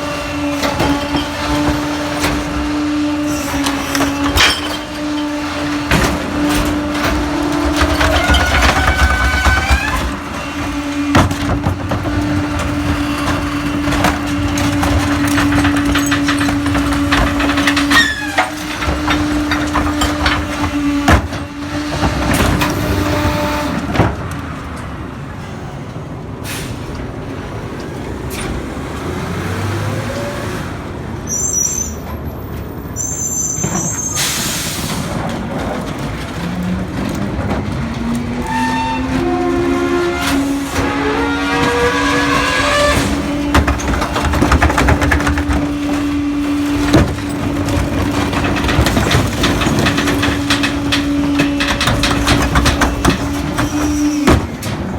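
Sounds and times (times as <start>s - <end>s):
trash clanking and crunching: 0.0s - 30.3s, 32.7s - 54.9s
air brake hiss: 26.4s - 26.9s, 34.0s - 35.1s
truck engine revving: 27.5s - 31.2s, 35.0s - 54.9s.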